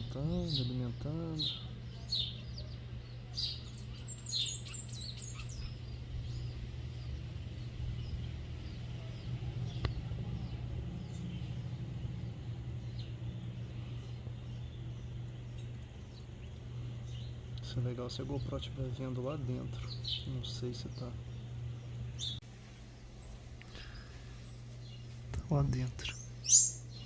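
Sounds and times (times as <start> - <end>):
bird chirps: 0.0 - 27.0
steady low hum: 0.0 - 27.0.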